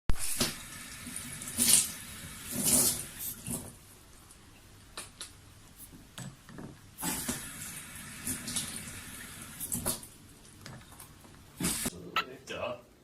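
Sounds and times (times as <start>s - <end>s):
water running and splashing: 0.2s - 3.8s, 7.0s - 10.3s.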